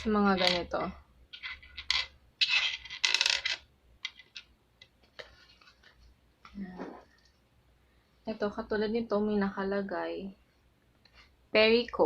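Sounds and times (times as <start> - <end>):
plastic pieces scraping and rustling: 0.2 - 6.1.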